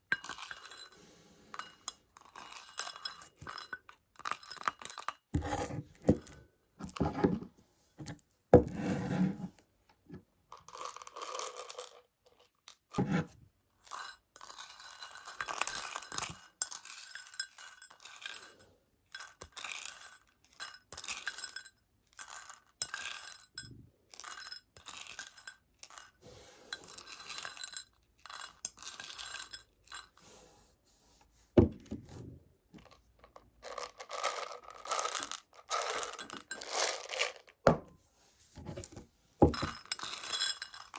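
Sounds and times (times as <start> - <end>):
candy rattling in plastic container: 10.6 - 12.4, 32.8 - 37.6.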